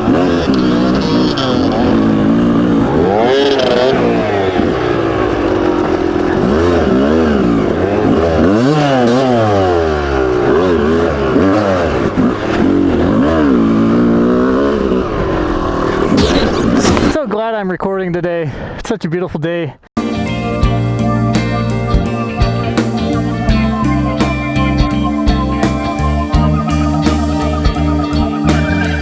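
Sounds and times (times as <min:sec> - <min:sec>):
dirt bike engine revving: 0:00.0 - 0:17.2.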